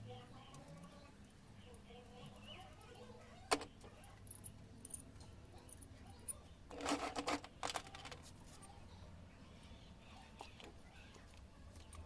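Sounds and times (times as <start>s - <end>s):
clicks and rattles of hand work: 6.7s - 8.4s.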